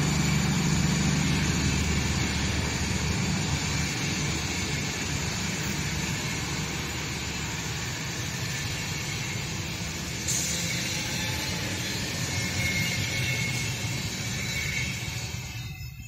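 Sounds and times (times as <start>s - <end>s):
train wheels rumbling on rails: 0.0s - 16.0s
faint high squeal: 7.8s - 16.0s.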